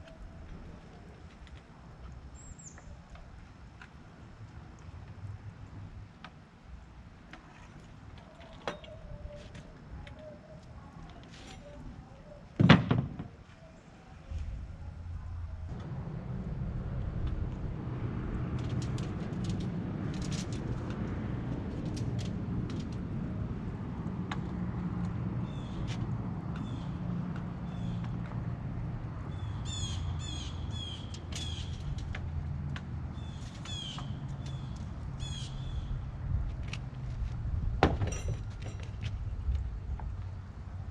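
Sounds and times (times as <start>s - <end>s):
steady low rumble: 14.2s - 29.6s
birds calling: 26.6s - 27.0s, 29.3s - 31.9s, 33.2s - 36.0s.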